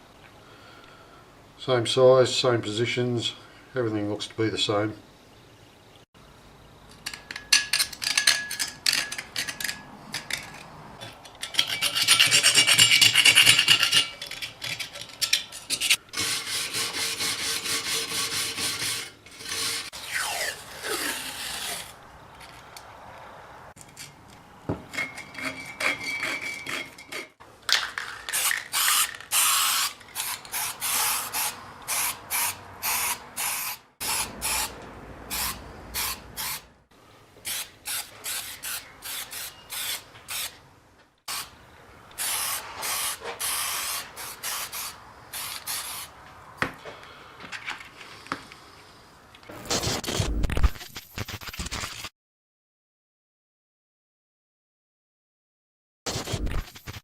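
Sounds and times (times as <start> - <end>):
rubbing and rasping strokes on metal: 11.4 - 22.0, 25.0 - 27.4.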